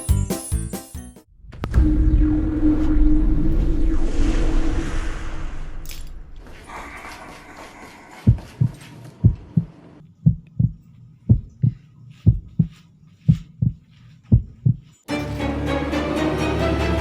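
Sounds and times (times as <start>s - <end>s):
music: 0.0s - 1.3s, 15.1s - 17.0s
heartbeat thumps: 8.2s - 14.9s.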